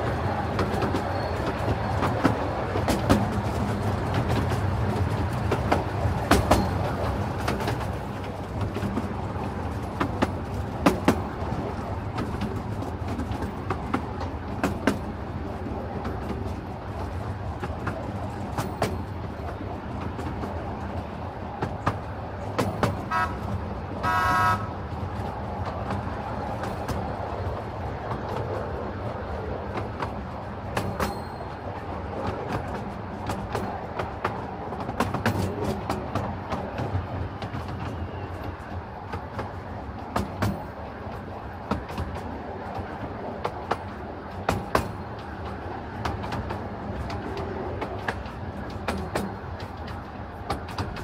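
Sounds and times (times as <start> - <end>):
train wheels rumbling on track: 0.0 - 51.0
locomotive toot: 23.0 - 24.8.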